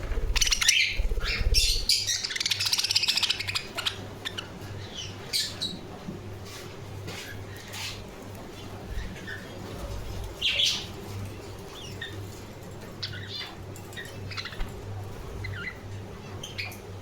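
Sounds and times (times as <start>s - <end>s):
budgerigars chirping: 0.0s - 5.8s, 8.6s - 11.0s, 11.7s - 16.8s
low steady hum: 0.0s - 17.0s.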